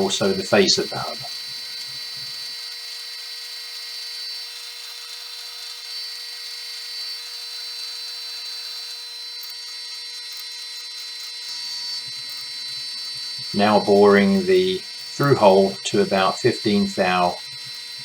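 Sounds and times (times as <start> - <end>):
metal lathe whining: 0.0 - 1.4.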